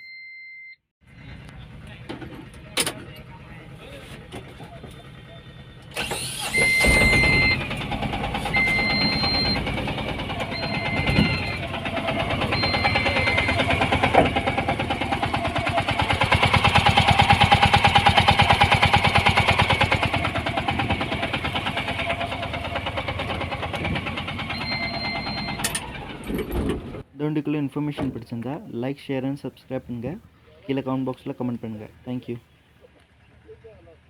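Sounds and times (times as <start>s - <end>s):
diesel engine clatter: 1.0s - 27.1s
short electronic beeps: 6.4s - 7.7s, 8.5s - 9.6s, 10.5s - 11.6s, 12.4s - 13.8s, 24.5s - 25.7s.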